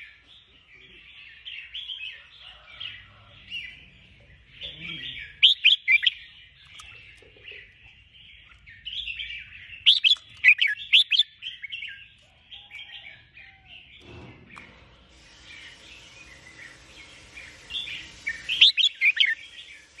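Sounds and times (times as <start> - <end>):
bulbul chirping: 4.4 - 12.0, 17.4 - 19.6.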